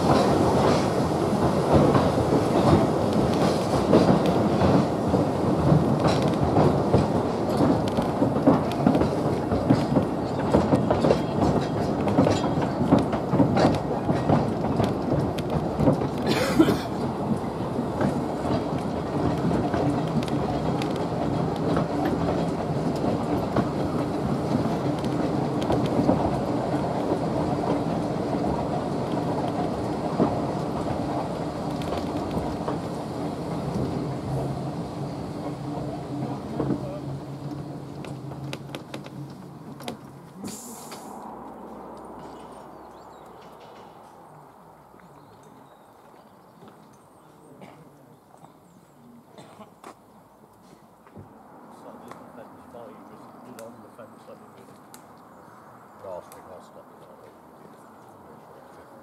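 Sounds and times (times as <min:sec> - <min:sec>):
train rumbling: 0:00.0 - 0:59.0
wheels clicking on track: 0:00.0 - 0:59.0
short hiss: 0:40.4 - 0:41.2.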